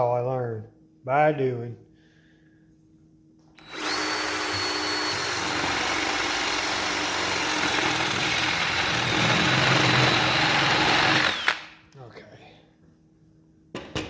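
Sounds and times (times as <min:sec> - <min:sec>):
grinding into wood: 0:03.6 - 0:11.6
power tool motor whine: 0:03.6 - 0:11.7.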